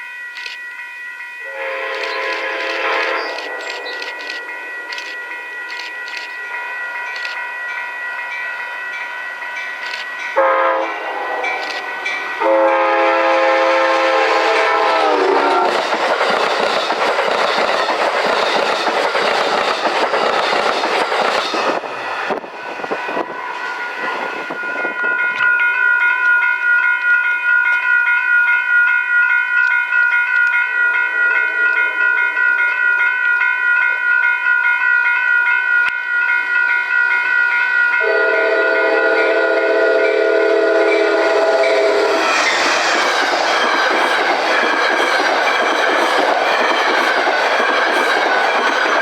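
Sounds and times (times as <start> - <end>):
steady high ringing tone: 0.0 - 14.9, 21.5 - 49.0
train wheel and rail noise: 0.0 - 49.0
train horn blasts: 1.4 - 3.6, 10.4 - 11.7, 12.4 - 15.8, 38.0 - 42.2.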